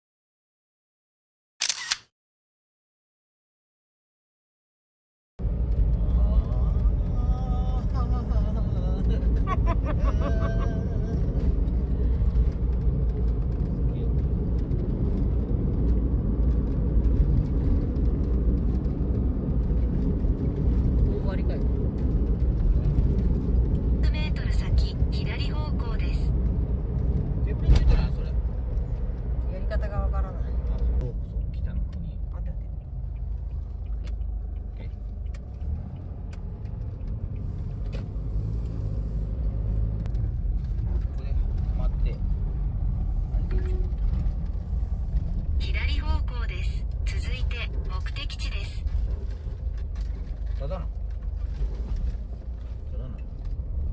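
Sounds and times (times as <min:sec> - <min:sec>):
car engine and tyre rumble: 0:05.4 - 0:53.9.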